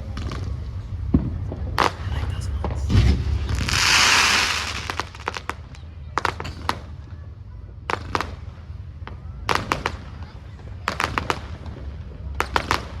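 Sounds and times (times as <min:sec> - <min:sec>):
fireworks sharp bangs: 0:00.0 - 0:07.0, 0:07.8 - 0:13.0
fireworks crackling hiss: 0:01.8 - 0:07.0.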